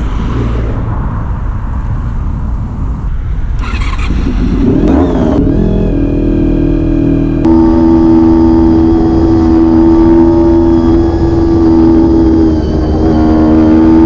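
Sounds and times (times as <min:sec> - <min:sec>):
motorcycle engine while riding: 0:03.5 - 0:14.0
rushing noise: 0:07.5 - 0:14.0.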